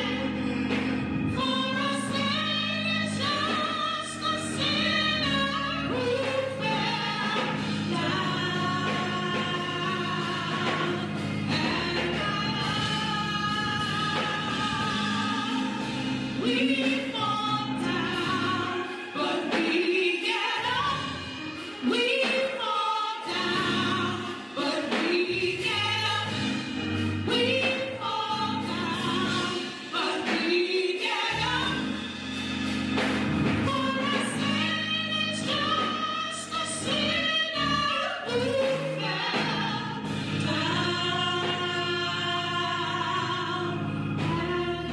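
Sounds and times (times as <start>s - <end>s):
gospel choir singing: 0.0s - 44.9s
sustained instrumental accompaniment: 0.0s - 44.9s.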